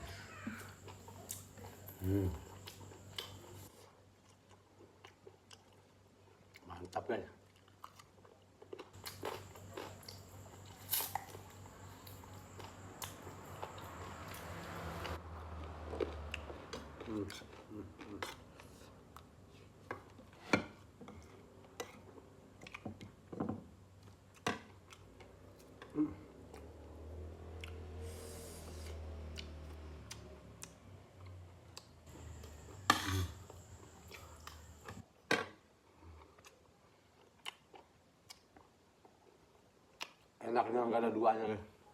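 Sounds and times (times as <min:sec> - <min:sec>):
person chewing crunchy food: 0:00.0 - 0:06.6, 0:07.4 - 0:20.4, 0:28.7 - 0:35.0, 0:36.0 - 0:40.3
low steady hum: 0:32.0 - 0:35.0
chewing mouth sounds: 0:36.2 - 0:39.2.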